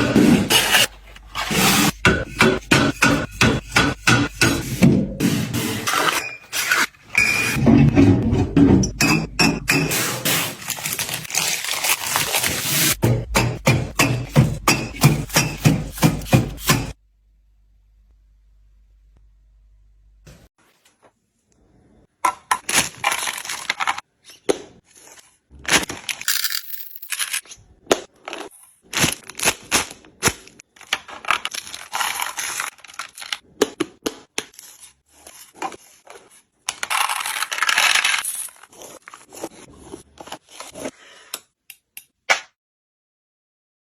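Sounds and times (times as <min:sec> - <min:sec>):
packaging crinkling: 0:10.6 - 0:12.8
small hard items clinking: 0:25.9 - 0:27.6.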